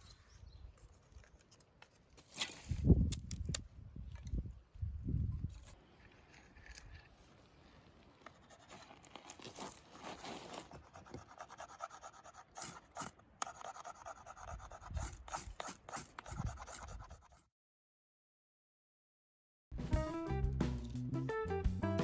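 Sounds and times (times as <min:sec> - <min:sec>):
objects scraping and clicking: 0:05.5 - 0:07.3.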